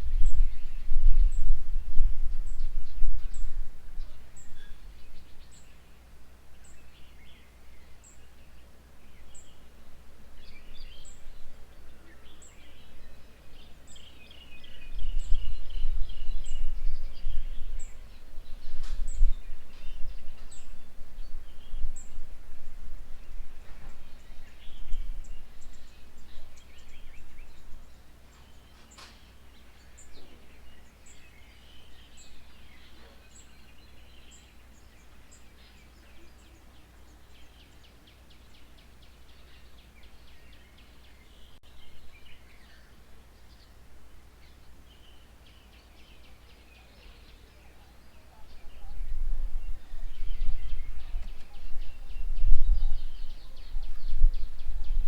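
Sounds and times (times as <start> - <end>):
low rumbling noise: 0.0 - 6.8
small birds chirping: 0.0 - 55.0.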